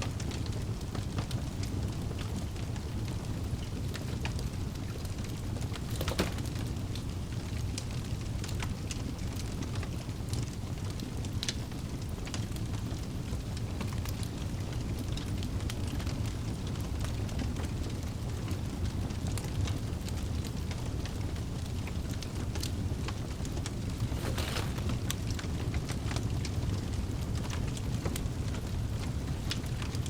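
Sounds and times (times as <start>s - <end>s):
fire flames rumbling: 0.0s - 30.0s
logs crackling and popping: 0.0s - 30.0s.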